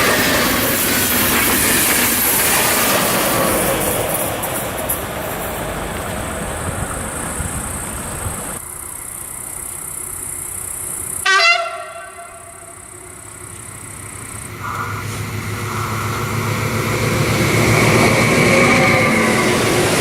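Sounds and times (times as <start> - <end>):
train rolling past: 0.0 - 20.0
locomotive horn toot: 11.2 - 13.2, 14.6 - 16.4.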